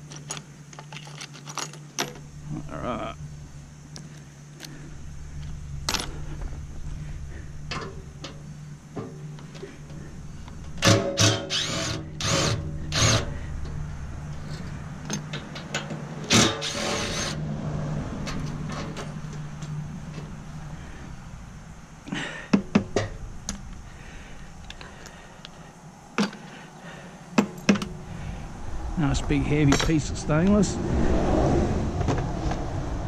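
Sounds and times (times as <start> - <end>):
steady low hum: 0.0 - 33.0
metal clanks and knocks: 4.6 - 17.4, 18.2 - 20.5, 22.4 - 24.0
power drill running: 10.8 - 13.4, 16.3 - 17.4.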